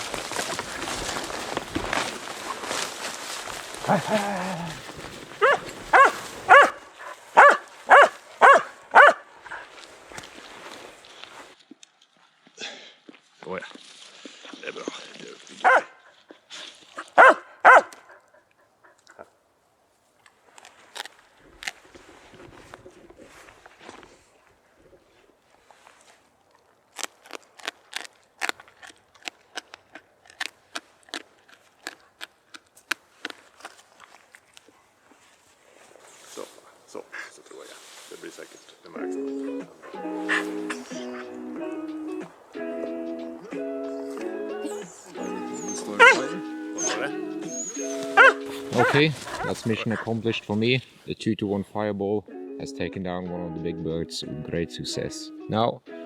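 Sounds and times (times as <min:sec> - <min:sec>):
twigs snapping underfoot: 0:00.0 - 0:12.1, 0:20.2 - 0:24.2, 0:26.4 - 0:35.4, 0:38.9 - 0:46.8
dog barking: 0:05.4 - 0:09.7, 0:15.6 - 0:16.0, 0:17.0 - 0:18.3, 0:39.4 - 0:42.3, 0:43.4 - 0:50.2.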